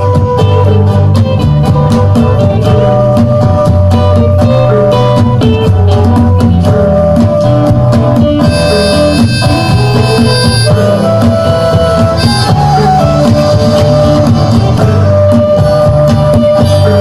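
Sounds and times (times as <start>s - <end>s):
plucked guitar: 0.0s - 17.0s
steady bass: 0.0s - 17.0s
reedy wind instrument melody: 6.7s - 17.0s.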